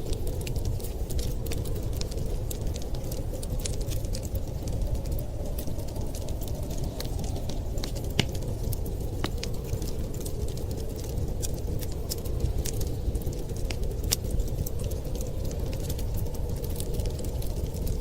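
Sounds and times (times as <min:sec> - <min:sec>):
low fire rumble: 0:00.0 - 0:18.0
wood fire crackling and popping: 0:00.0 - 0:18.0.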